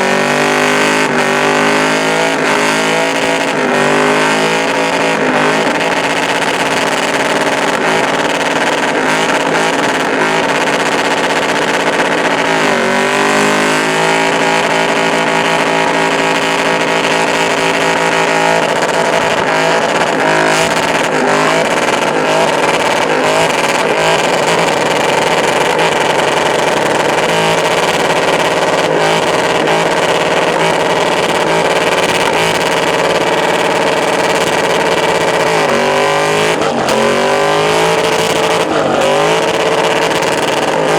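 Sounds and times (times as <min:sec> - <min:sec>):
engine at high revs: 0:00.0 - 0:40.9.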